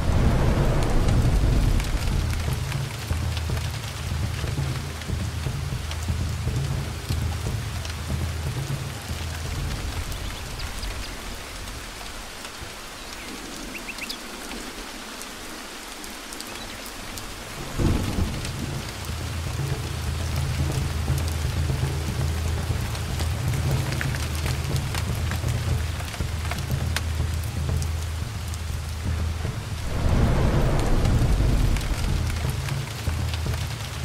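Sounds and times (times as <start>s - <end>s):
loud thunder crack: 0.0s - 2.9s, 29.8s - 33.2s
rolling thunder: 0.0s - 4.4s, 17.3s - 19.6s, 29.0s - 34.0s
heavy rain falling: 0.0s - 34.0s.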